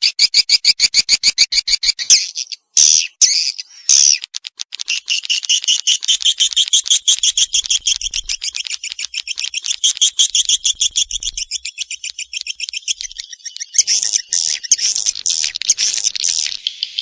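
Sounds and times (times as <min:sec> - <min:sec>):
swiftlets twittering: 0:04.9 - 0:17.0.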